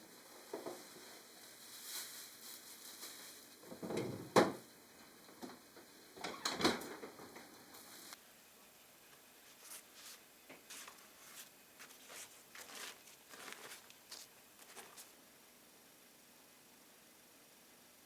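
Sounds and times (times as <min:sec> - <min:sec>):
objects knocking and clattering: 0:03.6 - 0:04.6.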